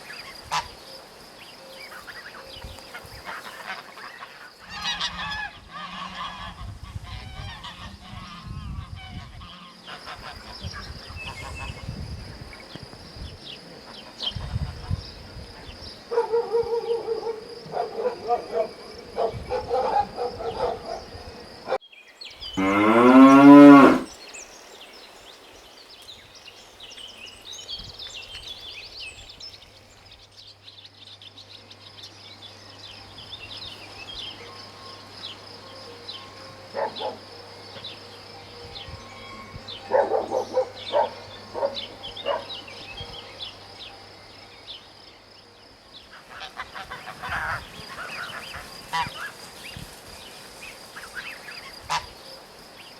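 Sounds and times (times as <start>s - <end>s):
cow mooing: 22.6s - 24.1s.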